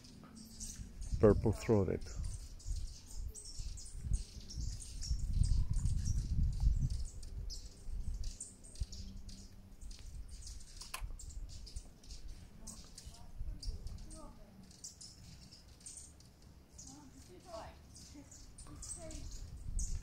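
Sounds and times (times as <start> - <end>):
high bird chirps: 0.0 - 20.0
low rumble on microphone: 0.6 - 12.2, 18.7 - 20.0
sharp click: 10.8 - 11.2.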